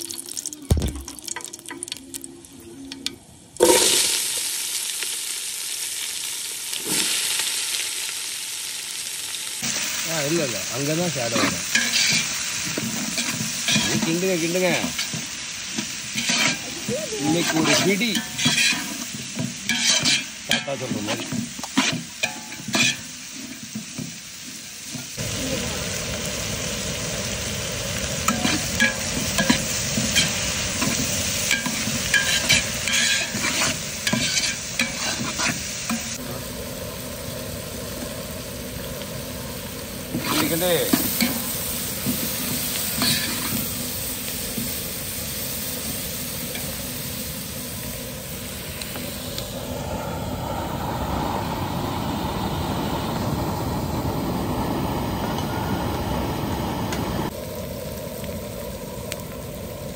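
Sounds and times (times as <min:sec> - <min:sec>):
onions sizzling in a pot: 0:00.0 - 0:59.9
metal ladle scraping a pot: 0:17.6 - 0:19.0, 0:19.7 - 0:20.3, 0:31.5 - 0:35.6
gas burner flame rushing: 0:25.2 - 0:59.9.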